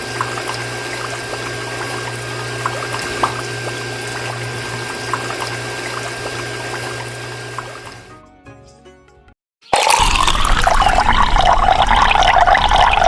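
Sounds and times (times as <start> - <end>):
water drips: 0.0 - 7.6
water pouring and splashing: 0.0 - 8.0, 9.8 - 13.0
water pump motor humming: 0.0 - 8.1, 9.8 - 13.0.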